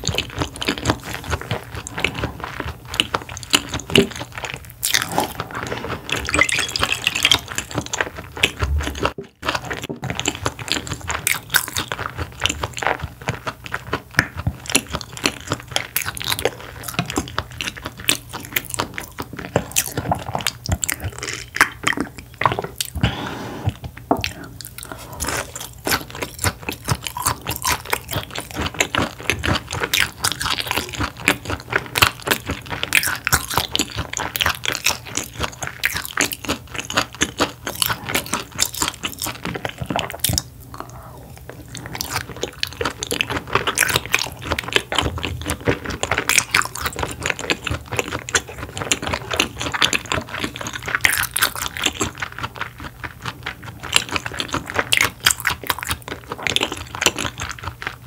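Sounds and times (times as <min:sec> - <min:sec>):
mouth and teeth clicks: 0:00.0 - 0:23.0, 0:23.8 - 0:58.0
chewing and biting: 0:00.0 - 0:58.0.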